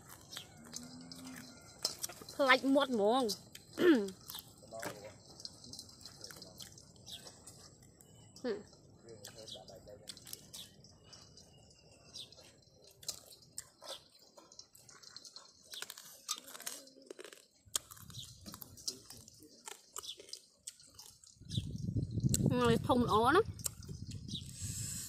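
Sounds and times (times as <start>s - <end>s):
crunching crab shells: 0.0s - 8.3s, 12.1s - 21.6s.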